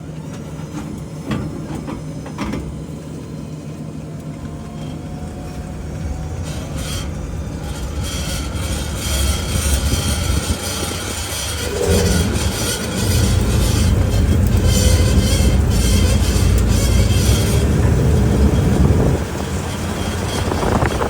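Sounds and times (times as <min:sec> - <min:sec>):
road and tire rumble: 0:00.0 - 0:21.0
metallic grinding at wheel: 0:06.3 - 0:21.0.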